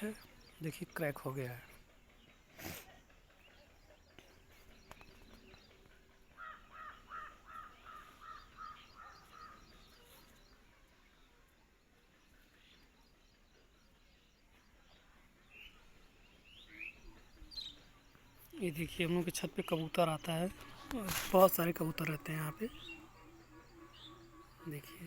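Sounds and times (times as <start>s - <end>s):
small birds chirping faintly: 0.0s - 25.0s
bird calling: 4.3s - 10.6s, 15.5s - 25.0s.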